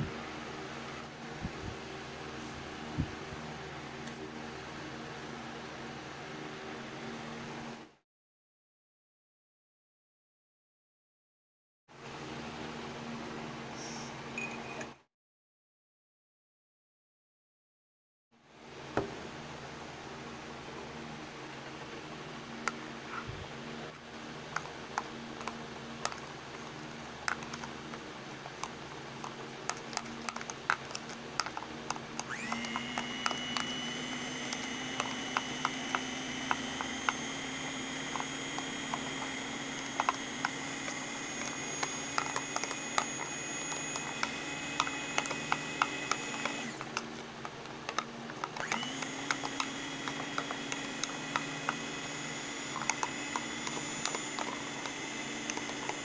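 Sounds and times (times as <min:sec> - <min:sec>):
electric hand mixer whine: 0:29.7 - 0:56.0
spoon clicking against plastic cup: 0:34.4 - 0:47.1, 0:47.9 - 0:56.0.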